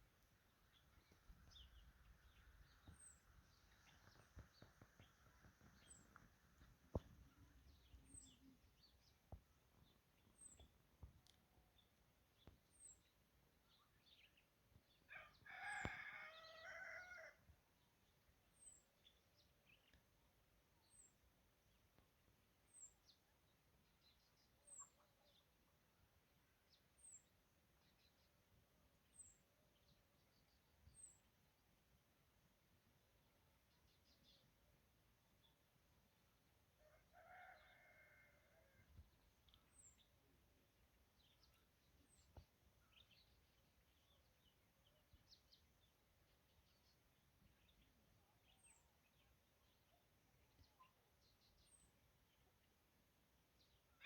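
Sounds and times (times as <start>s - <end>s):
rooster crowing: 15.1s - 17.4s.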